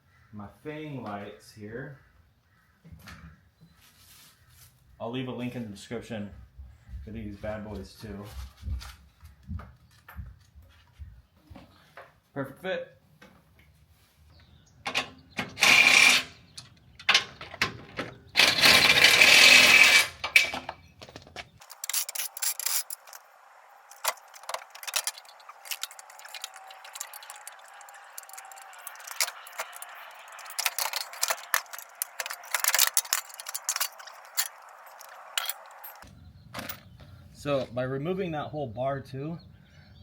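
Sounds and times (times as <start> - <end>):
metal tools clinking and rattling: 14.9 - 23.3, 23.9 - 36.0.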